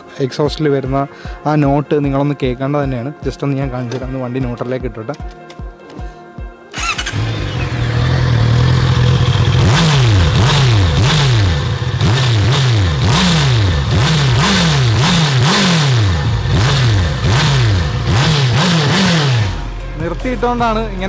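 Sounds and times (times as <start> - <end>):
motorcycle engine idling and revving: 6.8 - 19.8.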